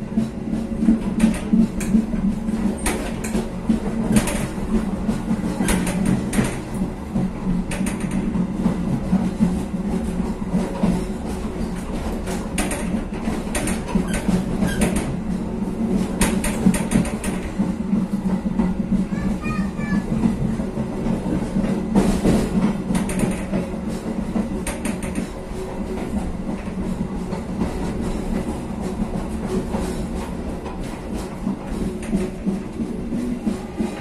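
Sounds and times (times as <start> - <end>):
train wheels rumbling: 0.0 - 34.0
wheels clacking and rattling: 0.0 - 34.0.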